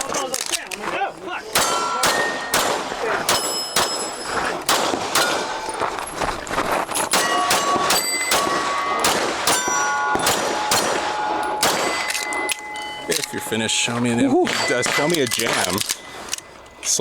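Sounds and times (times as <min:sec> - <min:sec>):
steel plates ringing: 0:01.5 - 0:04.5, 0:07.0 - 0:17.0
pistol shots: 0:01.5 - 0:05.8, 0:07.1 - 0:13.3, 0:14.5 - 0:16.4.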